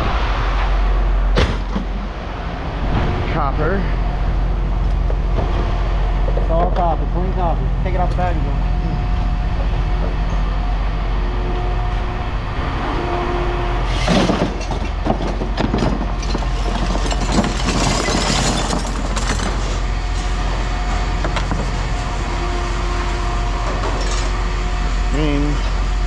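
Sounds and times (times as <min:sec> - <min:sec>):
low machinery drone: 0:00.0 - 0:26.0
scrap metal clattering: 0:13.8 - 0:21.9.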